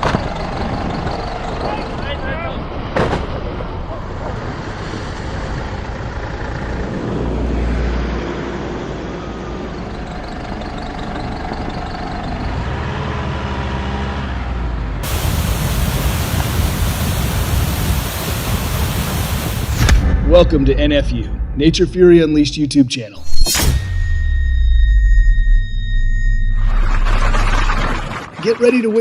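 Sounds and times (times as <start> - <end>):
vehicle road rumble: 0.0 - 20.1
loud steady hiss: 15.0 - 20.0.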